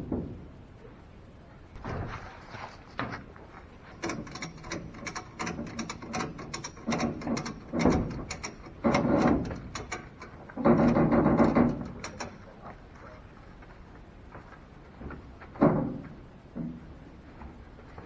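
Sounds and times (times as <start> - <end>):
ratchet strap clicking: 4.0 - 12.4.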